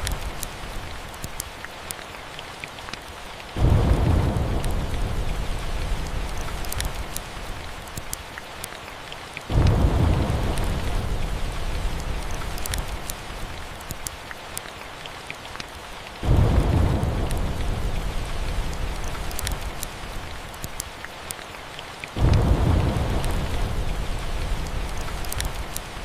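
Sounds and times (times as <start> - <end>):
wood fire crackling: 0.0 - 8.7, 9.5 - 21.4, 22.2 - 26.0
steady rain: 0.0 - 26.0
thunder rumbling: 3.6 - 7.7, 9.5 - 13.8, 16.2 - 20.4, 22.2 - 26.0.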